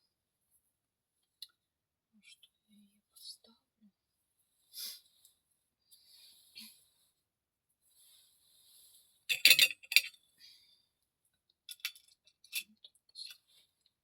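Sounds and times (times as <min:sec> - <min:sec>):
glassy clinks: 0:09.3 - 0:10.2.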